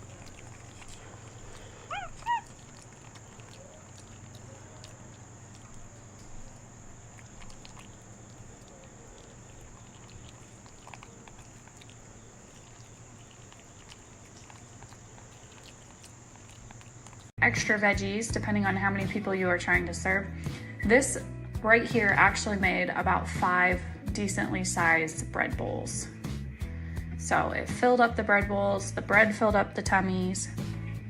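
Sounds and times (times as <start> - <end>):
animal yelping: 0.0 - 17.3.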